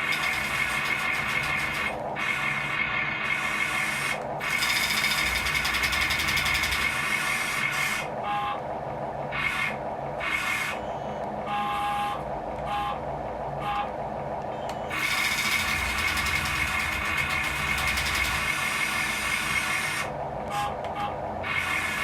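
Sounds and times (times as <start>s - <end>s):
small electric motors whining: 0.0s - 8.0s, 14.9s - 22.0s.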